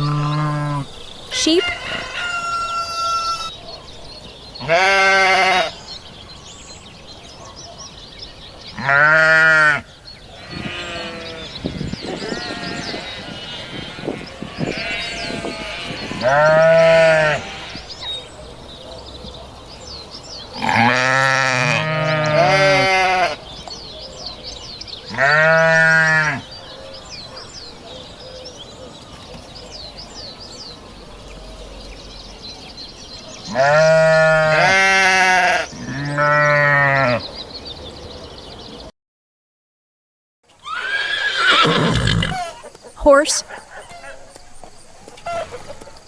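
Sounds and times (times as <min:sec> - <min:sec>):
sheep bleating: 0:00.0 - 0:00.9, 0:04.6 - 0:05.8, 0:08.8 - 0:17.9, 0:20.6 - 0:23.4, 0:25.1 - 0:26.4, 0:33.5 - 0:37.2.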